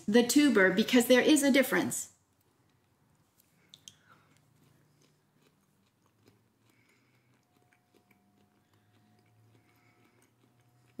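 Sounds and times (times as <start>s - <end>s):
faint chewing: 2.2s - 11.0s.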